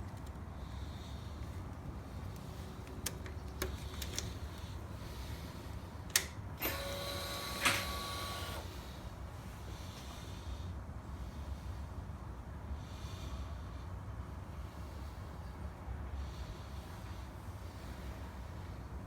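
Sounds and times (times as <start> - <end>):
sharp clicks: 2.9 - 4.4, 6.1 - 6.4.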